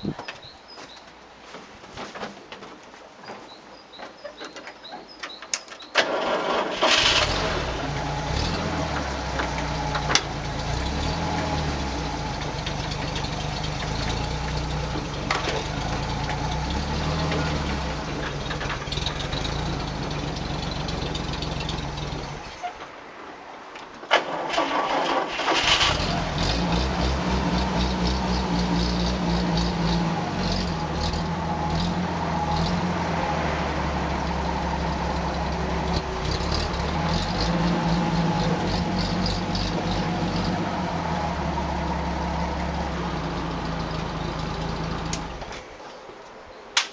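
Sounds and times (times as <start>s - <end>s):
engine starting click: 5.9s - 8.6s, 24.1s - 28.2s
engine running: 6.1s - 22.6s, 24.6s - 45.6s.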